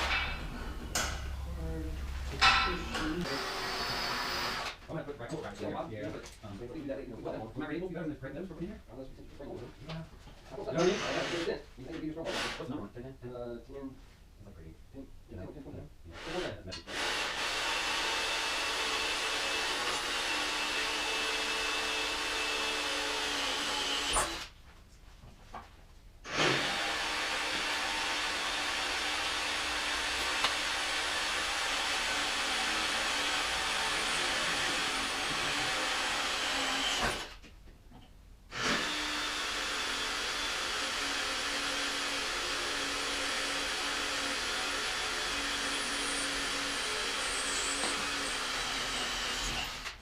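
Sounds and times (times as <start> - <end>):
power tool running: 0.0 - 4.8, 16.2 - 24.5, 26.3 - 37.4, 38.5 - 50.0.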